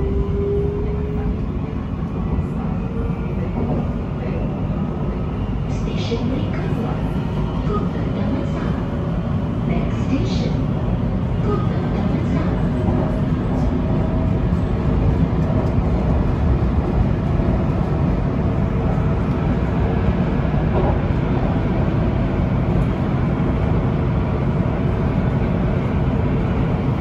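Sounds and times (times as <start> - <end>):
metro train rumbling: 0.0 - 27.0.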